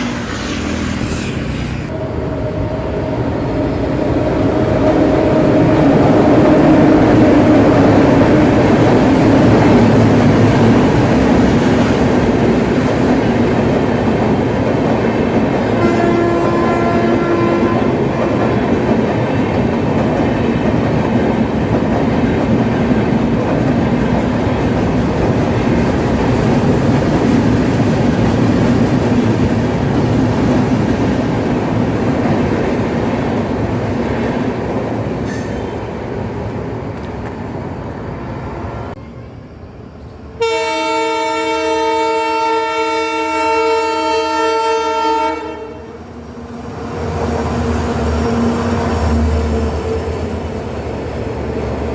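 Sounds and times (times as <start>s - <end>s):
locomotive air horn blast: 15.8s - 18.4s, 40.4s - 46.0s.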